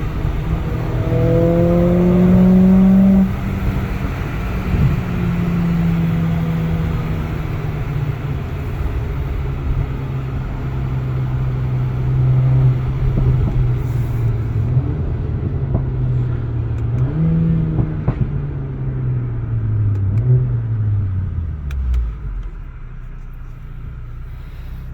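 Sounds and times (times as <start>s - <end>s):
car engine from inside cabin: 0.0s - 24.9s
sharp exhaust pops: 12.9s - 18.4s.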